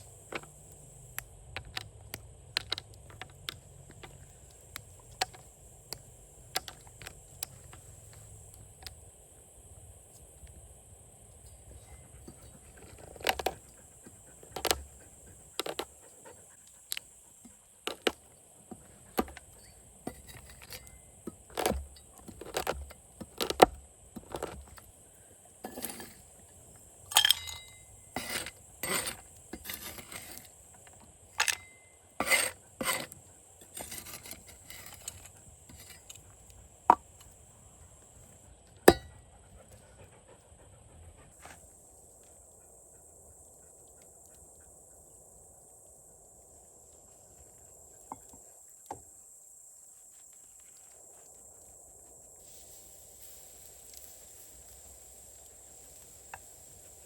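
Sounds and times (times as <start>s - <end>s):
metal utensils clinking on cookware: 27.1s - 29.0s
steady high hiss: 41.4s - 57.0s.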